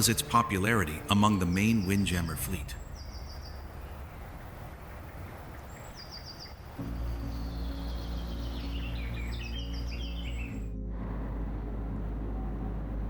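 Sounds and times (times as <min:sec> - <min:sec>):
low sustained music: 0:00.0 - 0:03.1, 0:06.7 - 0:13.0
birds chirping: 0:00.0 - 0:10.8.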